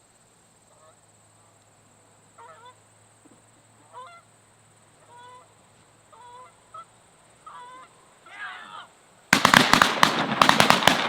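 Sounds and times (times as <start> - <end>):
geese honking: 2.4 - 2.8, 3.8 - 4.3, 5.0 - 5.5, 6.1 - 8.9.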